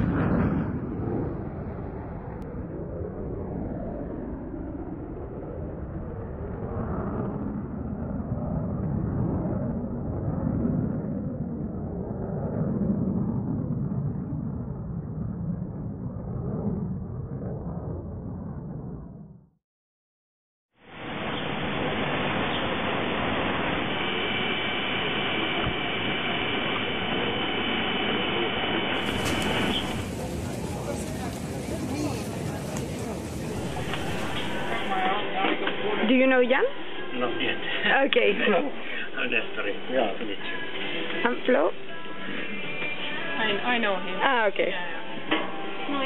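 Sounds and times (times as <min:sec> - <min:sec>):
airliner cabin engine rumble: 0:00.0 - 0:19.4, 0:20.9 - 0:46.0
vehicle rumbling roar: 0:29.0 - 0:35.8.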